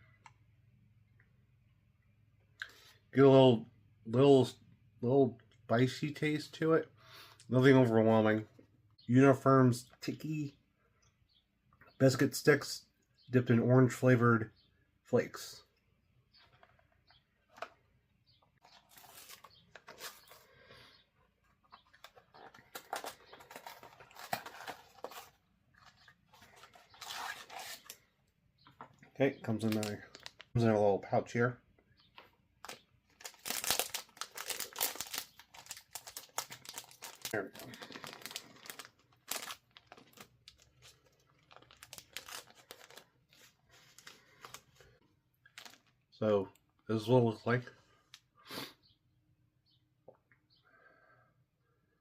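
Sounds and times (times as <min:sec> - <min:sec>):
plastic packaging crinkling: 0:18.6 - 0:20.8, 0:21.6 - 0:28.0, 0:29.4 - 0:30.6, 0:32.6 - 0:46.0
plastic pouch rustling: 0:18.6 - 0:28.1, 0:29.5 - 0:30.6, 0:32.6 - 0:46.0.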